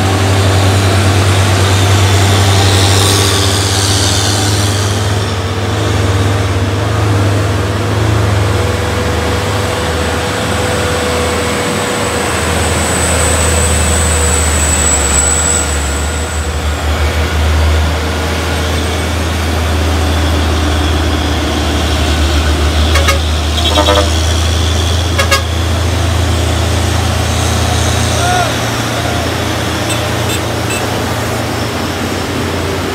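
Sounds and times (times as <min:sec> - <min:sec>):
heavy truck engine rumbling: 0:00.0 - 0:32.9
truck horn toots: 0:22.8 - 0:24.5, 0:25.1 - 0:25.8, 0:29.7 - 0:31.1.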